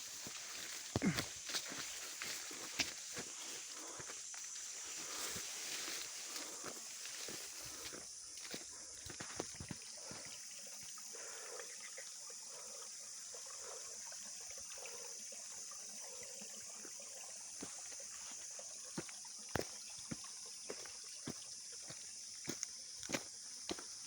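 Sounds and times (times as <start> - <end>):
footsteps on trail: 0.0 - 10.9, 17.6 - 24.0.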